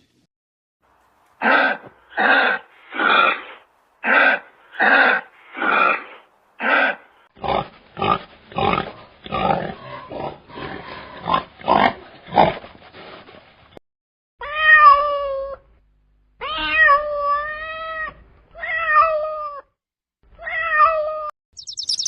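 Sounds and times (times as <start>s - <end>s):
rough grunting calls: 1.4s - 12.5s.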